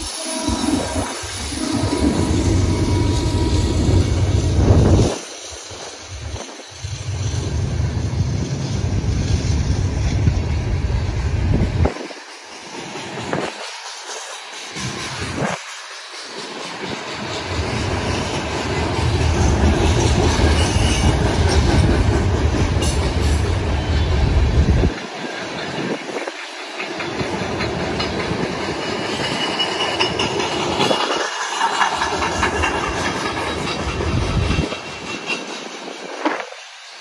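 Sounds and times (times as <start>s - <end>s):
freight train rumbling past: 0.0s - 37.0s
wheels clacking over rail joints: 11.8s - 36.7s.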